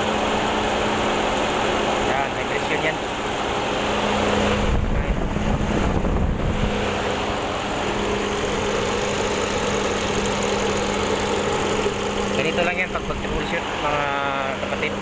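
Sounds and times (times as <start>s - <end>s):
engine idling roughly with misfire: 0.0s - 15.0s
low rumble on microphone: 4.6s - 6.8s.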